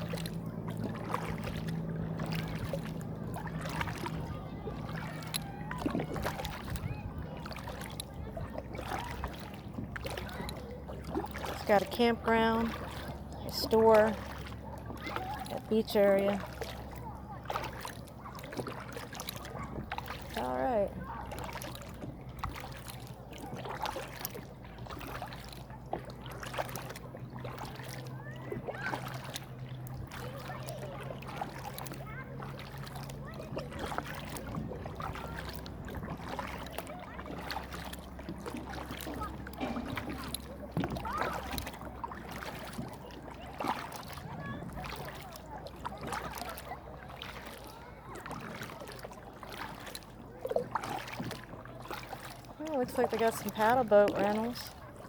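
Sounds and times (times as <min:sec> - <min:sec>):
steady low rumble: 0:00.0 - 0:10.9
faint distant voices: 0:00.0 - 0:55.0
kayak paddle splashing water: 0:00.0 - 0:55.0.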